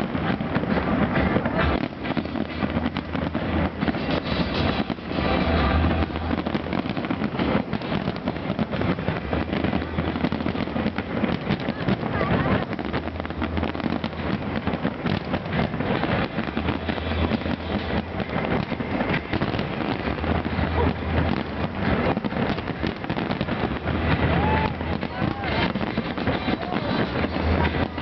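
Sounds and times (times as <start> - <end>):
fireworks crackling and popping: 0.0 - 28.0
heavy firework bangs: 0.0 - 28.0.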